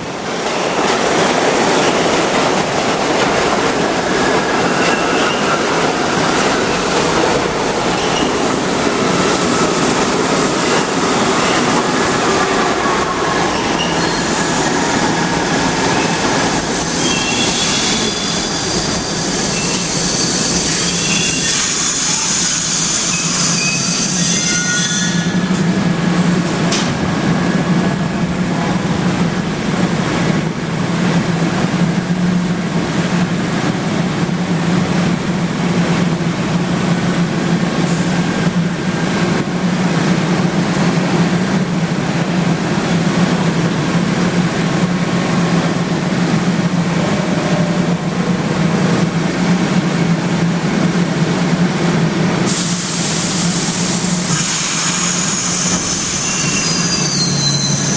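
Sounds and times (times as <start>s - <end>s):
subway train rumbling: 0.0s - 57.9s
high wheel squeal: 13.5s - 14.5s, 16.0s - 25.5s, 54.3s - 57.9s.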